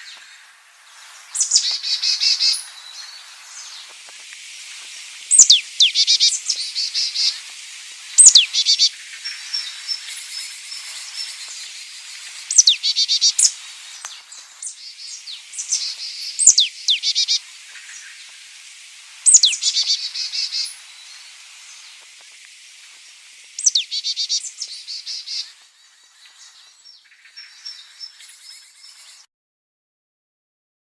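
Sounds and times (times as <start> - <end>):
high insect hiss: 0.0 - 29.3
songbird whistle and trill: 1.3 - 3.9, 5.3 - 7.4, 8.1 - 18.4, 19.2 - 22.0, 23.6 - 29.2.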